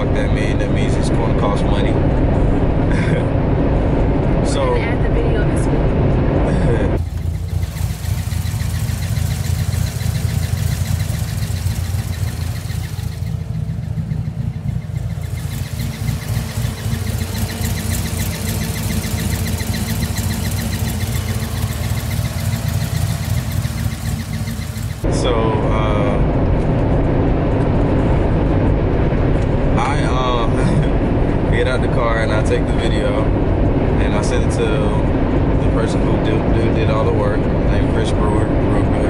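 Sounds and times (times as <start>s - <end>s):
car engine running: 0.0s - 39.0s
fast even squeak: 7.0s - 25.0s.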